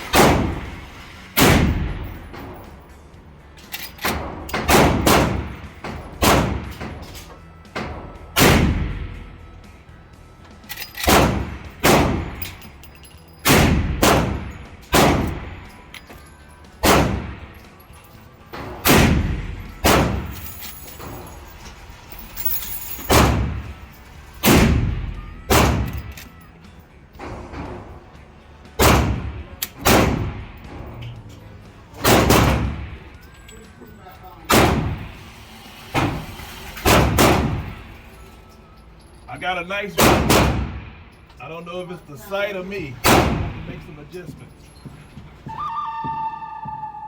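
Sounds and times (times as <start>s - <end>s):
gunshots with ringing echo: 0.1s - 0.7s, 1.4s - 2.2s, 4.6s - 6.8s, 8.4s - 9.2s, 11.0s - 12.5s, 13.4s - 15.6s, 16.8s - 17.6s, 18.8s - 20.4s, 23.1s - 23.7s, 24.4s - 26.1s, 28.8s - 30.8s, 32.0s - 33.1s, 34.5s - 35.1s, 36.8s - 37.7s, 40.0s - 41.0s, 43.0s - 43.8s.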